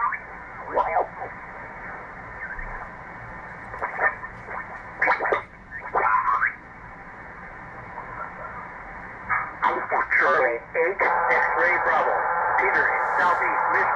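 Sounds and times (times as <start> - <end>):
radio band hiss: 0.0 - 6.6, 7.2 - 13.9
garbled warbling radio voices: 3.8 - 6.6, 9.3 - 13.9.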